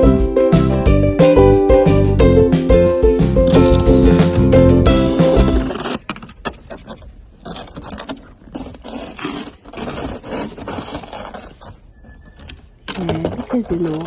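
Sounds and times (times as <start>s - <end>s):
snow brush scraping car: 6.8s - 11.8s.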